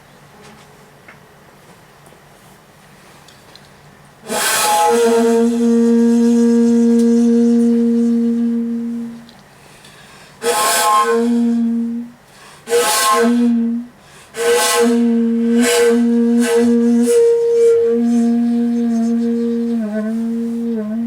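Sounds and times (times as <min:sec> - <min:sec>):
bamboo flute solo: 0:04.2 - 0:09.4, 0:10.4 - 0:21.0.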